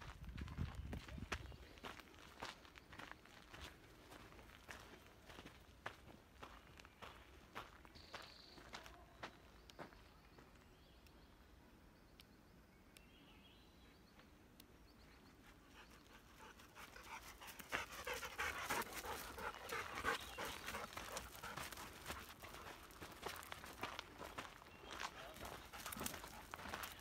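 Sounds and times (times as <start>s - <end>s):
dog panting: 15.6s - 23.3s, 25.2s - 27.0s
footsteps on gravel: 19.0s - 27.0s.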